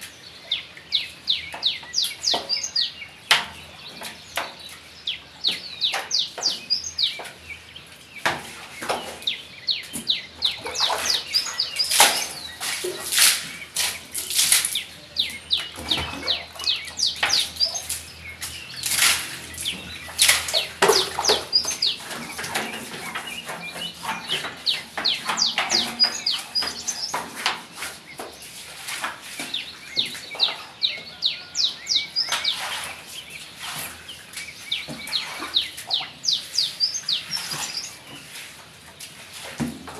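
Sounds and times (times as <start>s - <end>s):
small birds chirping: 0.0s - 39.2s.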